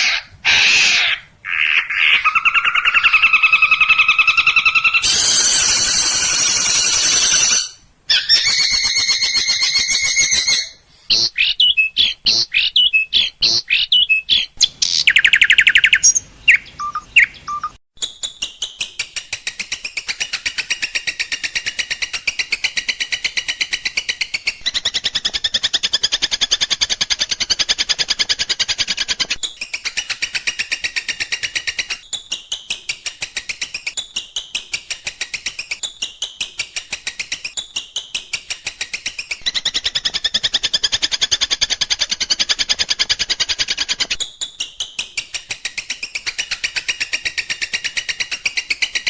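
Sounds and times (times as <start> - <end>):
rapid rattling bird chatter: 0.0 - 10.8
fast bird trill: 0.0 - 17.8
harsh buzzy bird calls: 0.0 - 17.8
quick sweeping bird notes: 2.1 - 10.8.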